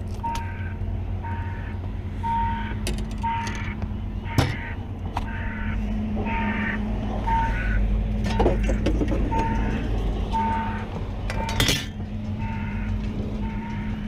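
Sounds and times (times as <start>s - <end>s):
low engine rumble: 0.0s - 14.0s
backup alarm beeping: 0.2s - 11.7s, 12.4s - 14.0s.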